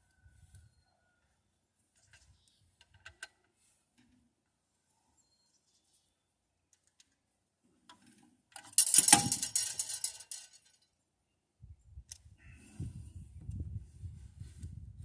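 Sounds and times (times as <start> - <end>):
small metal objects jangling: 8.7 - 10.8.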